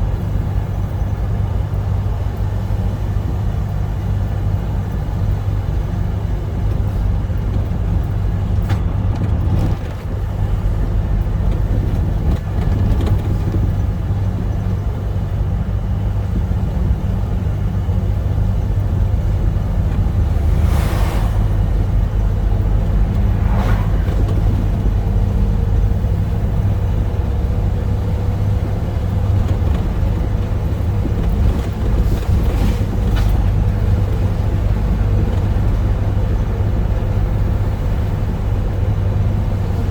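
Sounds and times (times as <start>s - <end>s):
truck engine rumbling: 0.0s - 39.9s
faint rising tone: 20.1s - 24.6s.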